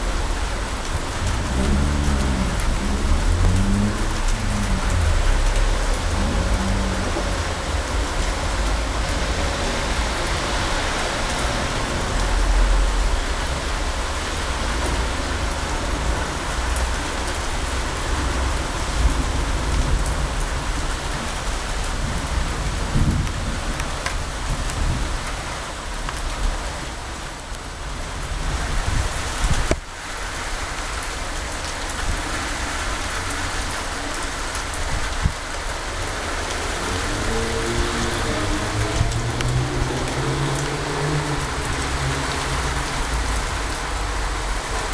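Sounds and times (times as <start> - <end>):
deep low thunder rumble: 0.0 - 10.7
heavy rain falling: 0.0 - 44.9.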